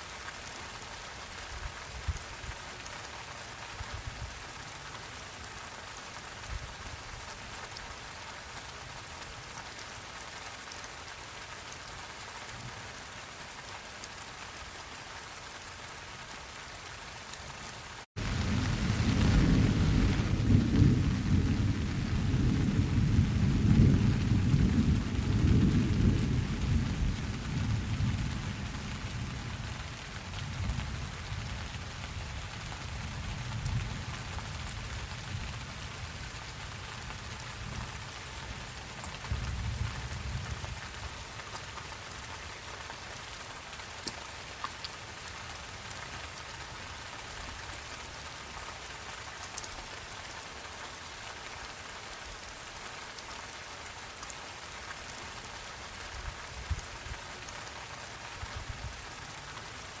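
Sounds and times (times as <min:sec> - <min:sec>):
steady rain falling: 0:00.0 - 1:00.0
rolling thunder rumble: 0:18.2 - 0:31.6.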